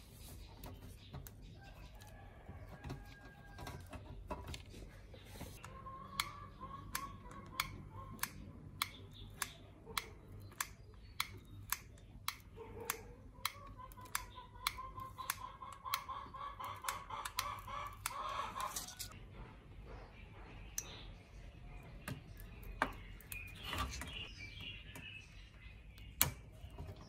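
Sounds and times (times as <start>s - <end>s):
sharp clicks: 5.6s - 19.2s.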